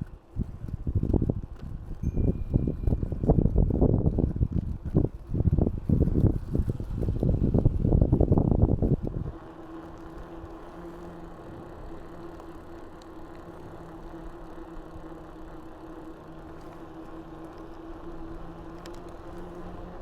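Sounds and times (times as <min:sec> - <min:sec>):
wind buffeting microphone: 0:00.0 - 0:12.0
steady low hum: 0:00.0 - 0:20.0.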